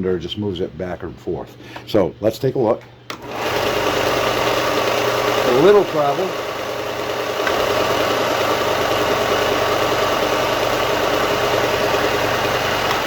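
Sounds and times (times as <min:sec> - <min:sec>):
belt sander motor humming: 0:03.1 - 0:13.0.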